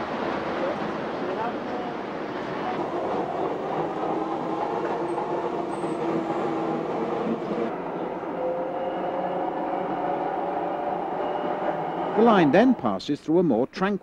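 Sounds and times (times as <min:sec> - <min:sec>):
train rumble with faint whine: 0:00.0 - 0:08.6
onboard train running noise: 0:00.0 - 0:12.8.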